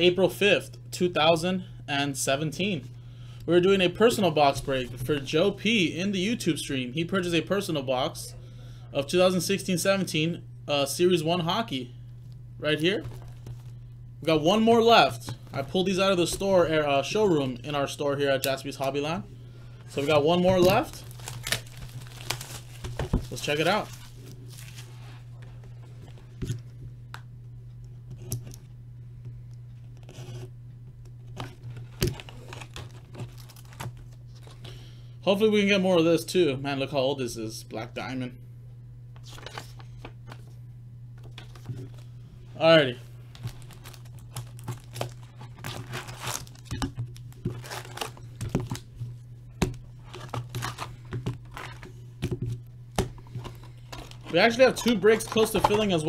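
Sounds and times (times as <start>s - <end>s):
low electrical hum: 0.0s - 56.0s
cards being handled: 19.8s - 25.4s, 39.2s - 40.6s, 41.2s - 42.2s, 43.2s - 56.0s
wrapper rustle: 19.9s - 25.3s, 32.2s - 34.6s, 42.9s - 49.0s, 50.0s - 51.9s.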